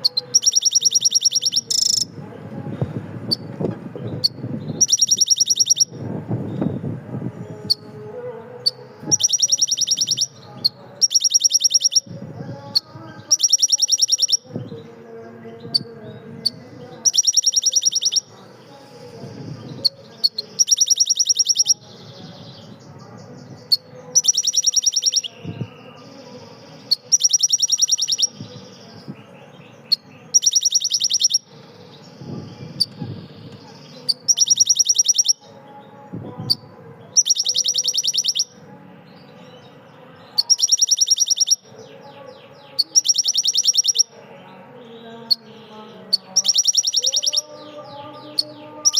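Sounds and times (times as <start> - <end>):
soft bird chirps: 0.0 - 2.1, 3.3 - 5.9, 8.6 - 12.1, 13.3 - 14.8, 15.7 - 35.5, 36.4 - 38.6, 39.6 - 44.2, 45.0 - 48.9
songbird rapid trills: 0.0 - 2.1, 4.2 - 5.9, 11.0 - 12.1, 13.3 - 14.4, 17.1 - 18.3, 20.2 - 21.8, 24.2 - 25.4, 30.3 - 31.5, 33.8 - 35.4, 37.2 - 38.5, 40.4 - 41.6, 42.8 - 44.1, 46.4 - 47.5.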